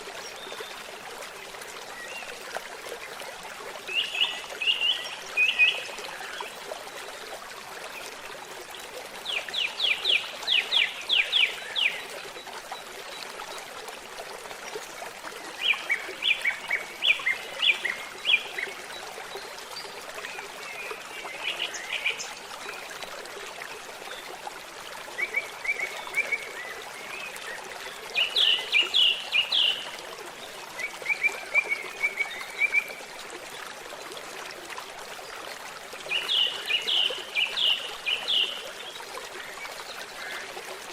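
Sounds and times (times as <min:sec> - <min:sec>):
babbling stream: 0:00.0 - 0:40.9
songbirds singing: 0:25.2 - 0:29.9.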